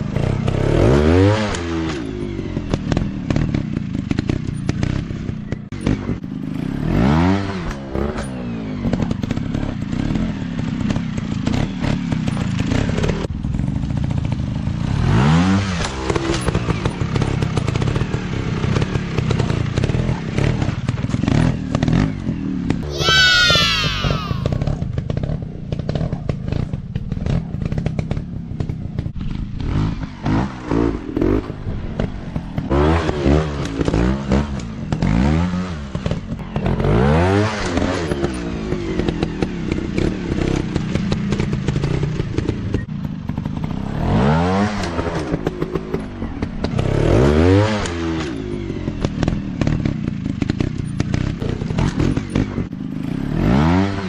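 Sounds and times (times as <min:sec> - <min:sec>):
dirt bike engines revving: 0:15.0 - 0:24.8.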